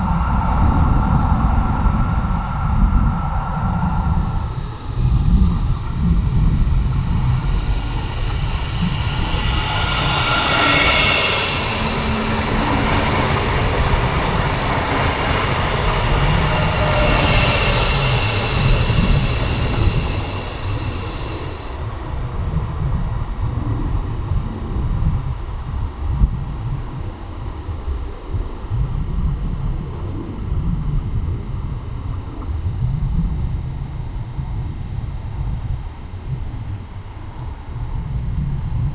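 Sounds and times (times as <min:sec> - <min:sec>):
hissing rail noise: 0:00.0 - 0:25.0
train wheels rumbling on rails: 0:00.0 - 0:25.3.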